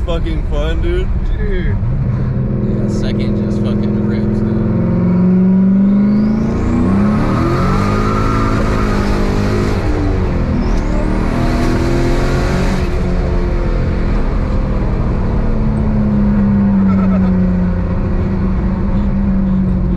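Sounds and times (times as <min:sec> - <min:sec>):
car engine accelerating hard: 0:00.0 - 0:19.9
turbo whistling: 0:16.7 - 0:17.4.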